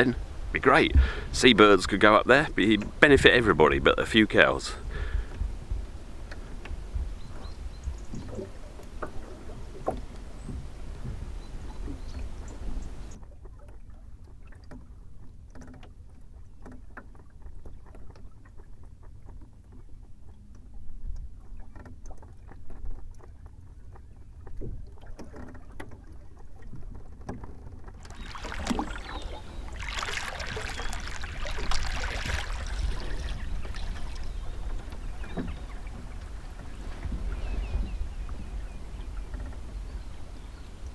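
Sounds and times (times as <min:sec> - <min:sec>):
wind rumble on microphone: 0:00.0 - 0:13.2, 0:28.0 - 0:40.9
water lapping at hull: 0:00.0 - 0:40.9
knocks and creaks: 0:05.3 - 0:12.3, 0:13.1 - 0:40.0
rushing hiss of water: 0:28.0 - 0:34.2.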